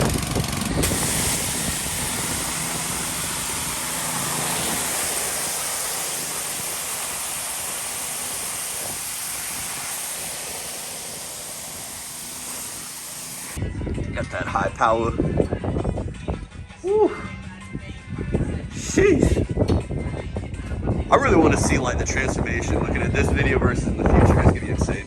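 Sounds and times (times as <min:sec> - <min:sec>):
high-pressure water spray hissing: 0:00.0 - 0:13.6
pressure washer engine humming: 0:00.0 - 0:13.6.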